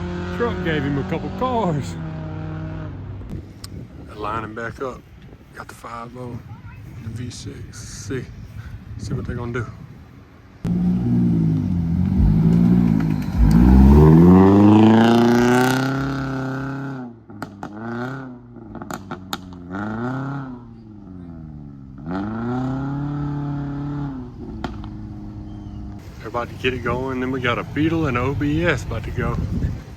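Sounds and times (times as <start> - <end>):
race car engine revving: 0.0 - 3.1, 10.6 - 25.8
engine blipped in short revs: 10.7 - 17.0.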